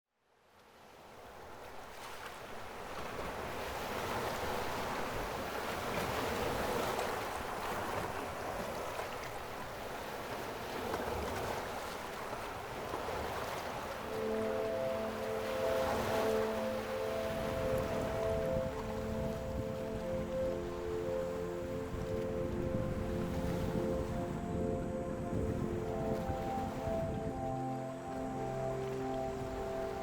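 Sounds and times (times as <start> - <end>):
wind rumble on microphone: 2.8 - 30.0
music: 14.0 - 30.0
strong wind rushing: 21.4 - 27.4.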